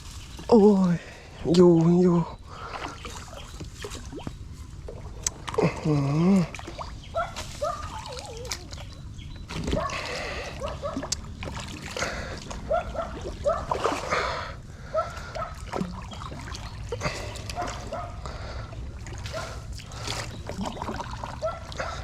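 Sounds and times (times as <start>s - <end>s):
water splashing: 2.4s - 22.0s.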